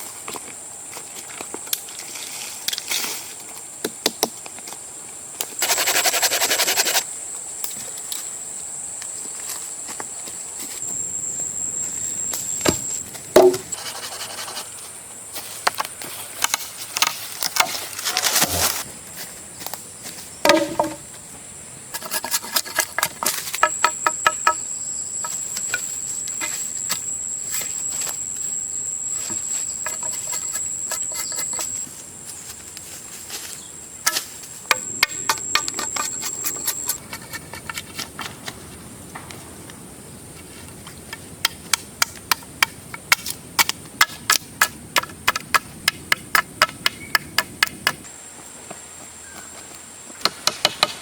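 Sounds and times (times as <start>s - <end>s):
high-pitched whine: 10.8s - 14.5s, 34.7s - 37.0s.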